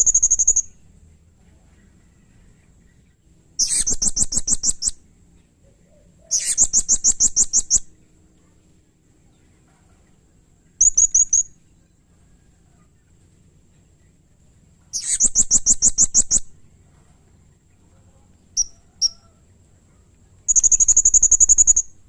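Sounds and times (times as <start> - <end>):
parrot high-pitched chirps: 0.0 - 0.8, 3.6 - 5.0, 6.2 - 7.9, 10.8 - 11.6, 14.9 - 16.6, 18.6 - 19.3, 20.5 - 22.0.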